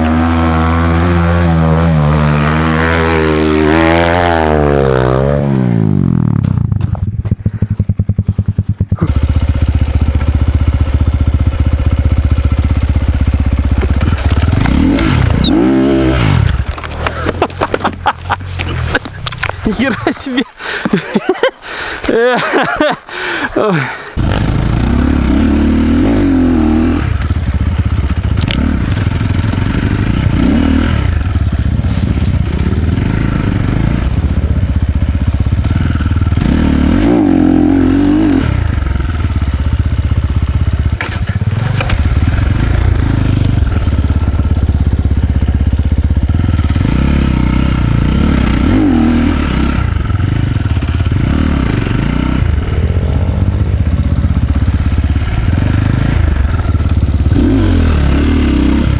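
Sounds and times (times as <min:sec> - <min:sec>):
dirt bike engine revving: 0:00.0 - 0:21.5, 0:22.4 - 0:58.9
bike knocking and clattering: 0:06.3 - 0:15.5.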